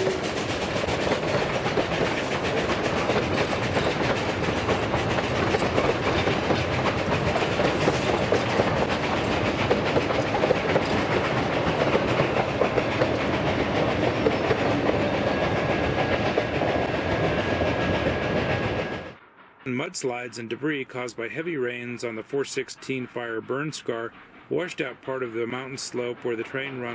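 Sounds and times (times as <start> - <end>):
train wheels rumbling on rail: 0.0 - 26.9
rapid clicks of wheels: 0.2 - 15.1.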